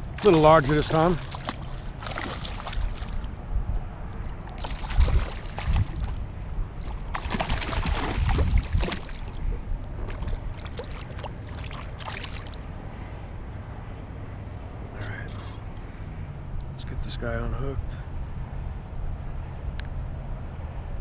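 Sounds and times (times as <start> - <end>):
water splashing against a kayak: 0.0 - 3.3, 4.1 - 12.6.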